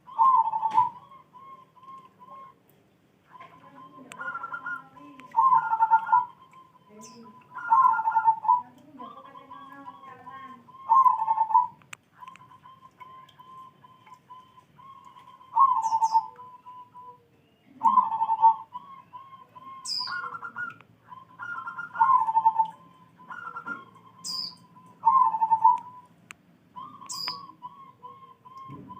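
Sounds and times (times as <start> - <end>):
dove cooing: 0.0 - 2.6, 3.2 - 26.1, 26.7 - 28.9
short high-pitched chirps: 27.0 - 27.6.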